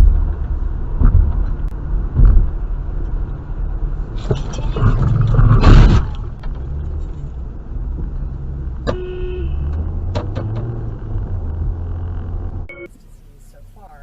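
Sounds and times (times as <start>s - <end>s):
car engine and road rumble: 0.0s - 14.0s
car horn toot: 8.9s - 9.8s.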